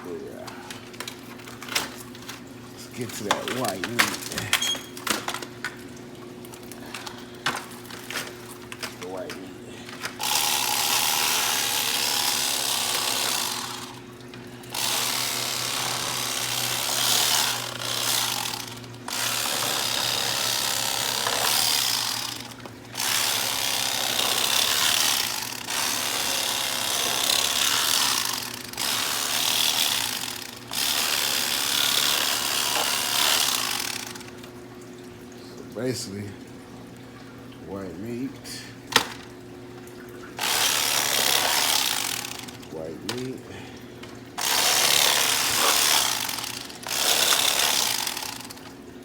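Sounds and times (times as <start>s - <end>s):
electric knife running: 0.0s - 5.5s, 6.9s - 34.6s, 38.9s - 39.3s, 40.4s - 48.9s.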